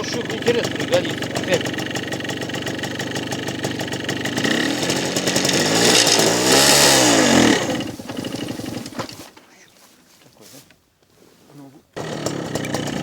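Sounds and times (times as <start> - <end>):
motorcycle engine whine: 0.0 - 9.3, 12.0 - 13.0.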